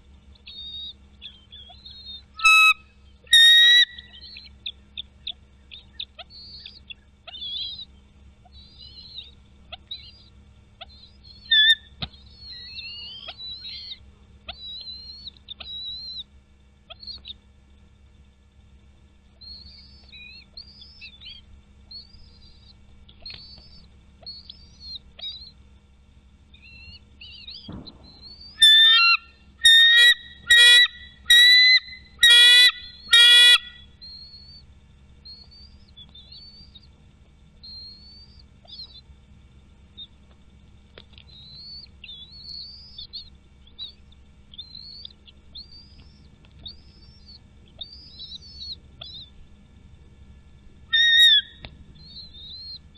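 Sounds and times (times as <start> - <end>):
high chirping eagle calls: 0.4 - 16.3, 26.5 - 34.6, 41.2 - 49.4, 50.9 - 52.9
loud ringing eagle calls: 0.5 - 4.5, 8.5 - 16.3, 26.6 - 34.6, 50.9 - 52.9
thump: 27.7 - 28.3.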